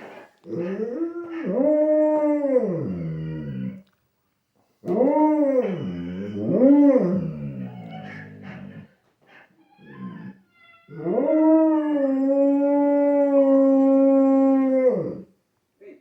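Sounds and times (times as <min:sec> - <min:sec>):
dog howling: 0:00.5 - 0:03.8, 0:04.8 - 0:08.9, 0:09.8 - 0:15.2.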